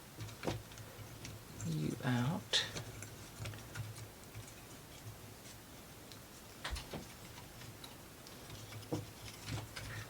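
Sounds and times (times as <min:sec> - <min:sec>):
clicks of wooden pieces handled: 0:02.7 - 0:10.0.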